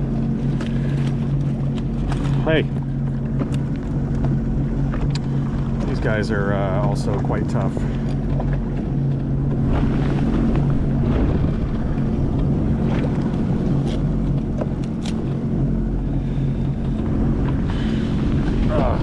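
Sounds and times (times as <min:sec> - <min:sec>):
jet ski engine idling: 0:00.0 - 0:19.0
wind on microphone: 0:00.0 - 0:19.0
sharp clicks and knocks: 0:00.6 - 0:05.9, 0:13.2 - 0:15.4.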